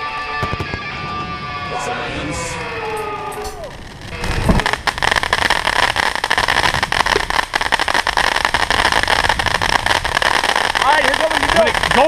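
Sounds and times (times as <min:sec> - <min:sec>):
fireworks crackling and hissing: 0:00.0 - 0:12.0.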